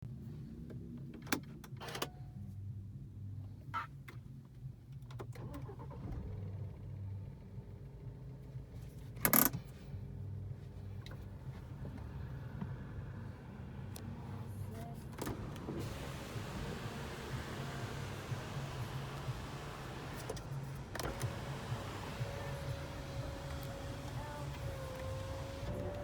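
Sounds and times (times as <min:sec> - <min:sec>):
car engine idling: 0:05.4 - 0:26.0.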